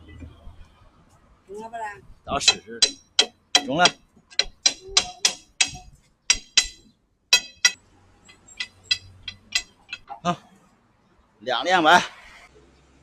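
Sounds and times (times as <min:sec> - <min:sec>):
metal tools clinking: 0:02.4 - 0:10.3.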